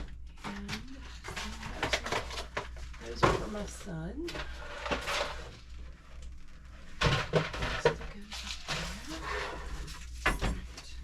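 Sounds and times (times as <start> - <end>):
items knocking on shelves: 0.0 - 3.7, 7.0 - 8.2.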